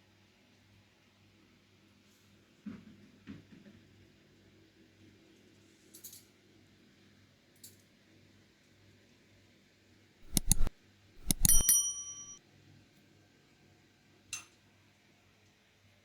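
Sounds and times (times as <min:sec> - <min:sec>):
cutlery clinking against dishes: 0:10.2 - 0:12.4.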